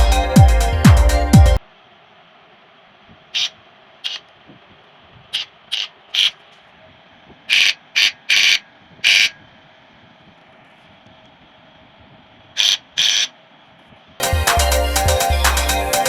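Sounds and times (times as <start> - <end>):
mechanical rasps: 3.3 - 4.4, 5.3 - 6.6, 7.4 - 9.5, 12.6 - 13.4.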